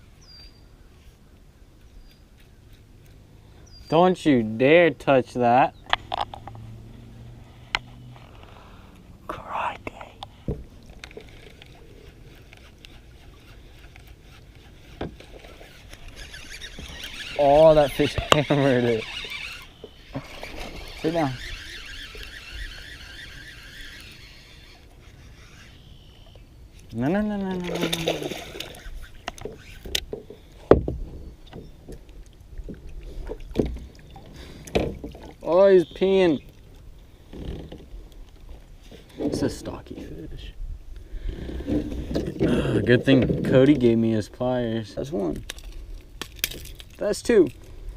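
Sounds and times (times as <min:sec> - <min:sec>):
dull knocks: 0:30.6 - 0:31.7.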